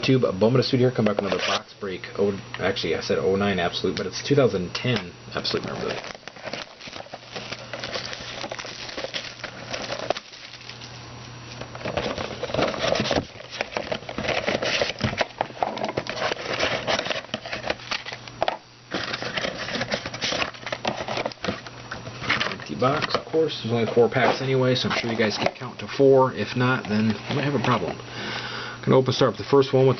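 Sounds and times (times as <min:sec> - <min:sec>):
steady low hum: 0:00.0 - 0:29.9
box being unwrapped crackling: 0:05.4 - 0:25.8, 0:26.4 - 0:27.9.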